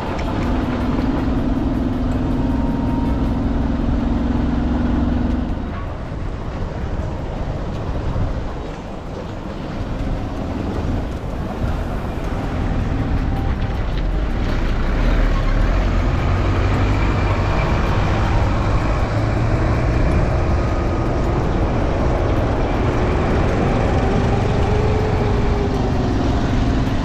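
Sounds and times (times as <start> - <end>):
steady hum: 0.0 - 15.0
low rumble of driving: 0.0 - 27.0.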